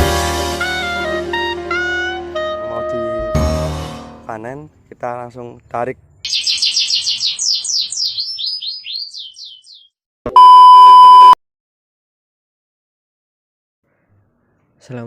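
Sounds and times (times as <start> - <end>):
high falling chirps: 6.3 - 9.9
electronic beep: 10.3 - 11.4.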